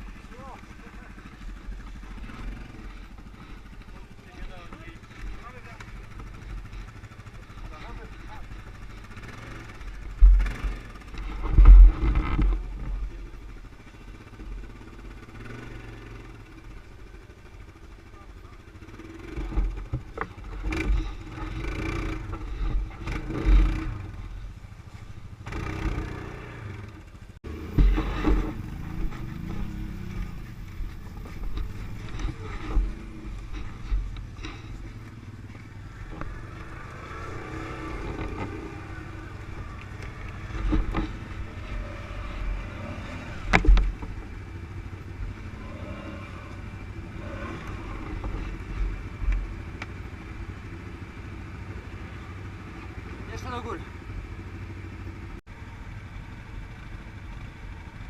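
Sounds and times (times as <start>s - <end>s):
quad bike engine revving: 0.0s - 56.5s
low thumps: 27.5s - 35.2s.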